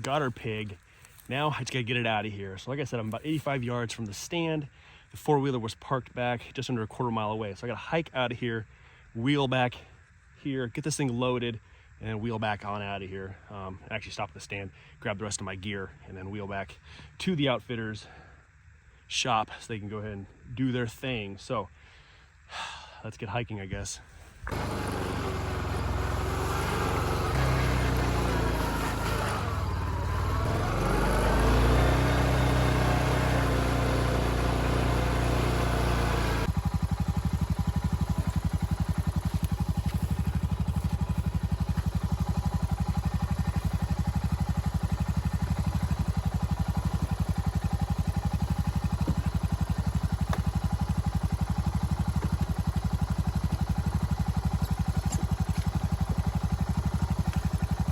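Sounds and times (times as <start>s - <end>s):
quad bike engine revving and idling: 24.4s - 57.9s.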